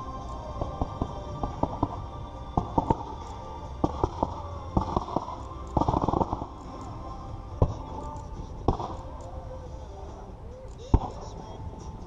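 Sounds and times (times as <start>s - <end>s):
fireworks bangs: 0.0s - 6.8s, 7.6s - 9.2s.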